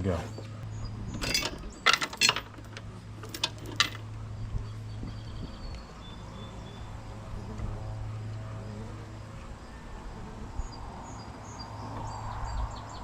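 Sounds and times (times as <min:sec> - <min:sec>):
metal parts clinking and knocking: 0:01.1 - 0:04.1.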